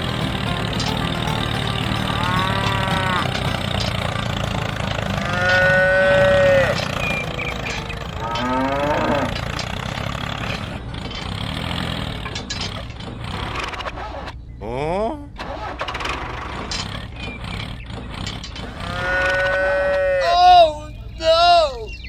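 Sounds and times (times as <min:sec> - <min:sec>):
cattle mooing: 0:01.9 - 0:10.6, 0:18.7 - 0:20.4.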